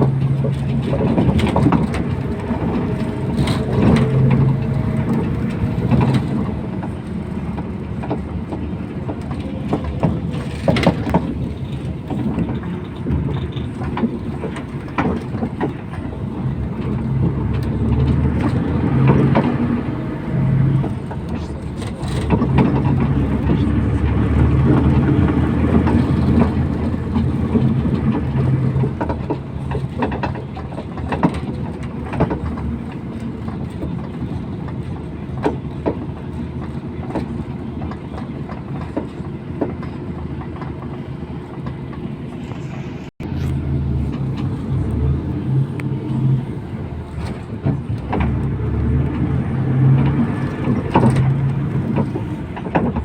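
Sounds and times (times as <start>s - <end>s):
bus body rattling and knocking: 0.0s - 42.5s, 43.2s - 53.0s
bus engine running: 0.0s - 53.0s.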